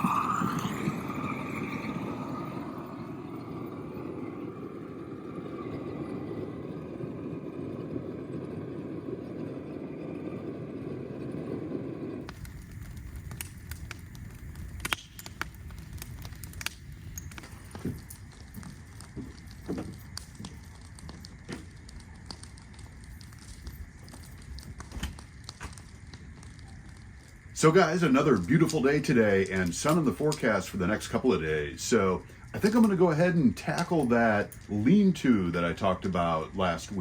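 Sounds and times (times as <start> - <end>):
sharp clicks and crackles: 12.1 - 37.0.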